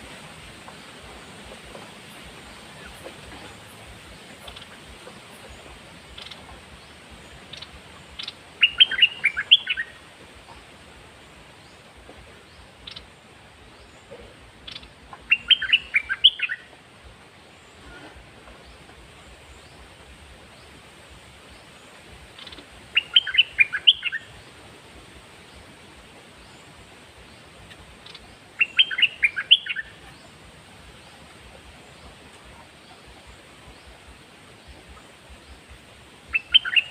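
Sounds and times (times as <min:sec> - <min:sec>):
bird call notes: 0:07.5 - 0:10.0, 0:14.0 - 0:16.7, 0:22.4 - 0:24.4, 0:28.0 - 0:30.4, 0:36.3 - 0:36.9
bird singing whistled notes: 0:07.6 - 0:10.0, 0:14.7 - 0:16.7, 0:22.4 - 0:24.3, 0:28.1 - 0:30.0, 0:36.3 - 0:36.9.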